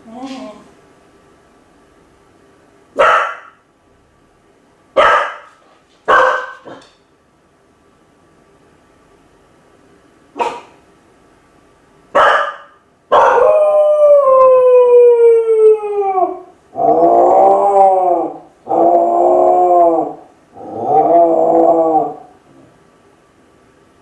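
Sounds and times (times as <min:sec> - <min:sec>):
dog barking: 0:03.0 - 0:03.6, 0:05.0 - 0:06.9, 0:10.4 - 0:10.8, 0:12.1 - 0:13.5
dog howling: 0:13.1 - 0:22.4.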